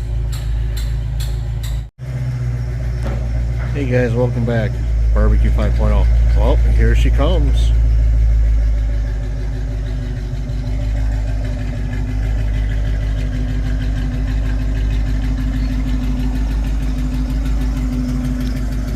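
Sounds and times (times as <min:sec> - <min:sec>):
car engine exhaust rumbling: 0:00.0 - 0:18.9.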